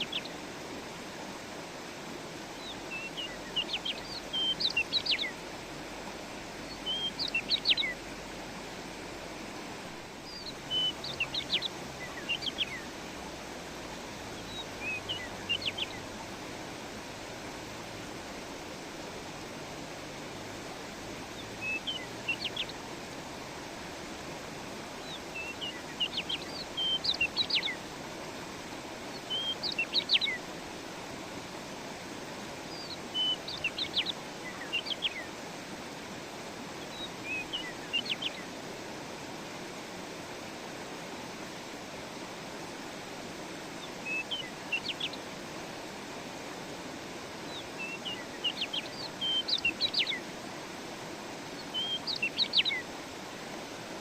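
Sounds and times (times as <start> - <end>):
songbird chirping and trilling: 0.0 - 0.4, 2.6 - 5.4, 6.7 - 8.0, 10.2 - 12.9, 14.4 - 16.1, 21.4 - 22.8, 25.0 - 27.8, 29.1 - 30.4, 32.7 - 35.3, 36.8 - 38.5, 43.8 - 45.2, 47.5 - 50.2, 51.6 - 52.9
flowing stream: 0.0 - 54.0.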